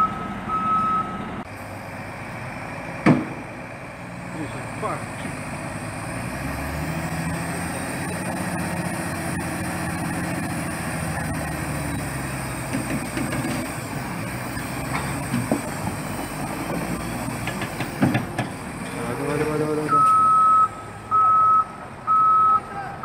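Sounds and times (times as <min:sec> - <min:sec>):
heavy truck engine running: 0:00.0 - 0:23.0
sharp knocks: 0:03.0 - 0:03.5, 0:12.6 - 0:13.7, 0:17.4 - 0:18.6.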